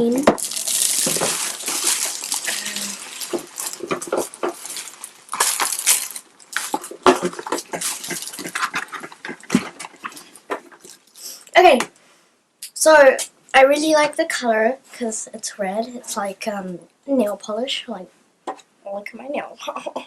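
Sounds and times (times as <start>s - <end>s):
packaging rustling and crinkling: 0.3s - 11.5s.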